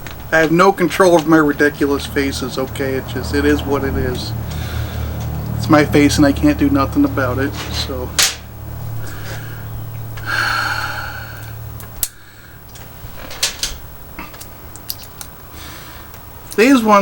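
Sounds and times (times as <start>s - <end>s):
objects clicking and tapping: 12.0s - 15.4s.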